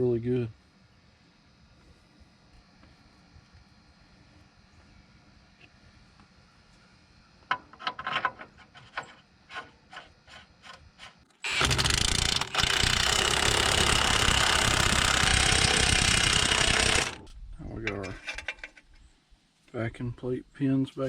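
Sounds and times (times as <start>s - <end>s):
power tool running: 11.4s - 17.3s.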